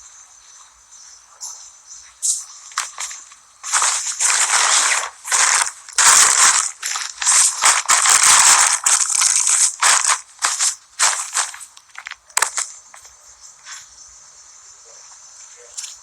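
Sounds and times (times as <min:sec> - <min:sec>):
bags rustling and crinkling: 0:02.6 - 0:12.8.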